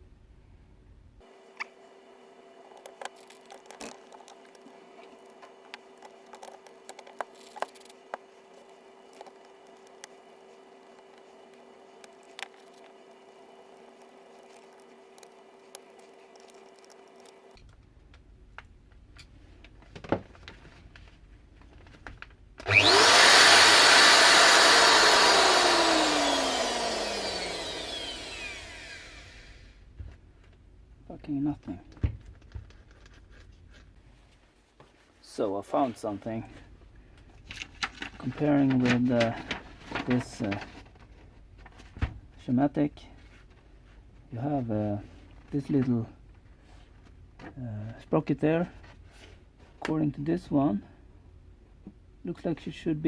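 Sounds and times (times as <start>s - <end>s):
angle grinder motor whining: 22.6s - 29.8s.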